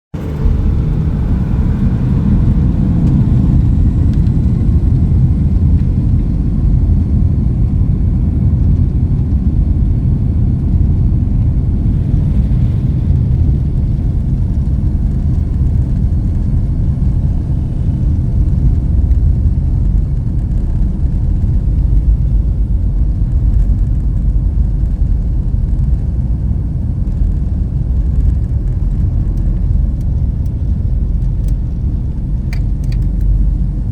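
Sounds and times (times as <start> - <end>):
jet engines rumbling at takeoff: 0.1 - 33.9
faint rising whine: 0.2 - 26.0.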